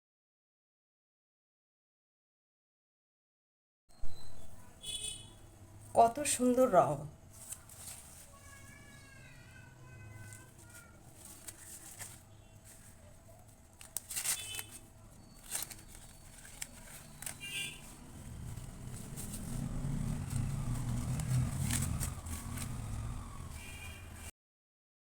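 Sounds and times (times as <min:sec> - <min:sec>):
corn husks crackling and tearing: 0:10.2 - 0:13.0, 0:13.7 - 0:23.8.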